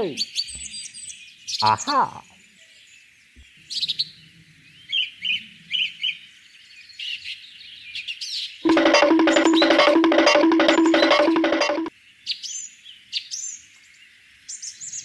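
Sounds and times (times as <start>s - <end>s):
music: 8.7s - 11.9s.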